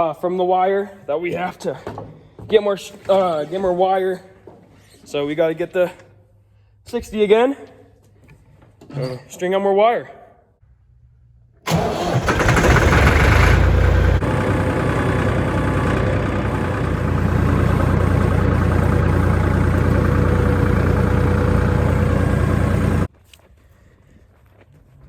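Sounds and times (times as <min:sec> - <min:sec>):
vehicle engine running: 0:11.7 - 0:23.1.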